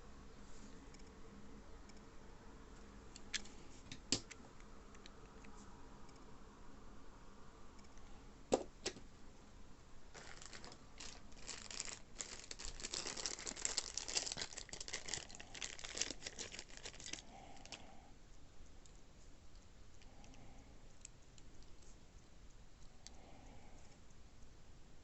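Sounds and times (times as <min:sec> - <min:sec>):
packaging crinkling and rustling: 0:10.1 - 0:17.8.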